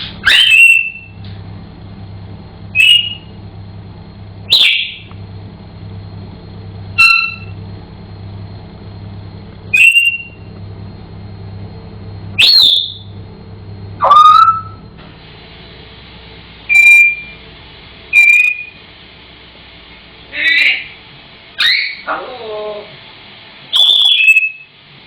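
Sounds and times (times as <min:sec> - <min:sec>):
low steady hum: 0:00.0 - 0:25.0
parrot whistling: 0:00.2 - 0:01.2, 0:02.7 - 0:03.4, 0:04.5 - 0:05.1, 0:07.0 - 0:07.6, 0:09.7 - 0:10.5, 0:12.4 - 0:13.1, 0:14.0 - 0:14.8, 0:16.7 - 0:17.4, 0:18.1 - 0:18.8, 0:21.6 - 0:22.1, 0:23.7 - 0:24.7.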